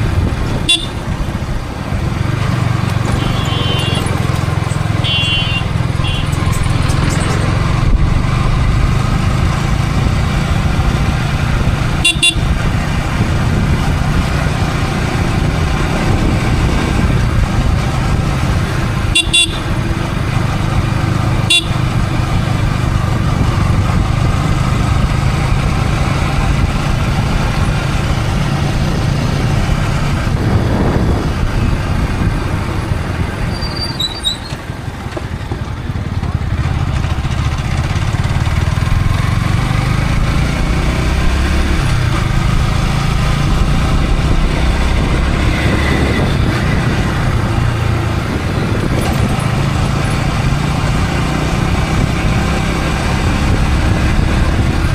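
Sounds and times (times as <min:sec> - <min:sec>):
motorcycle engine running: 0:00.0 - 0:54.9
traffic horn toots: 0:00.6 - 0:01.2, 0:03.0 - 0:06.6, 0:12.0 - 0:12.8, 0:19.0 - 0:19.9, 0:21.4 - 0:22.0.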